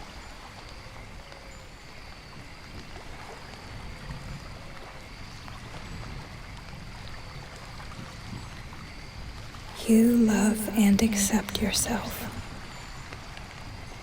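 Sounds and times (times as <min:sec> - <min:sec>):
rain: 0:00.0 - 0:14.0
faint high steady tones: 0:09.8 - 0:12.9.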